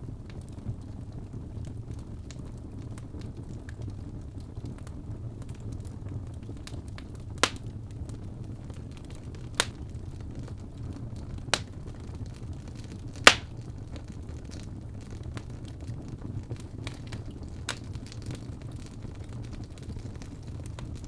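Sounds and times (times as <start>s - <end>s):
fire burning in fireplace: 0.0s - 21.0s
sharp pops of fire: 6.6s - 8.2s, 8.8s - 10.6s, 11.2s - 15.8s, 16.4s - 21.0s.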